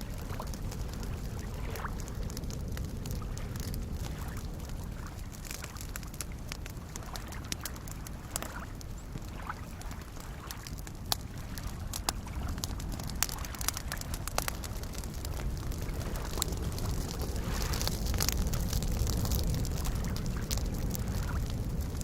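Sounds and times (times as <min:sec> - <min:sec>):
lake waves lapping: 0:00.0 - 0:21.5
campfire crackling and popping: 0:00.0 - 0:22.0.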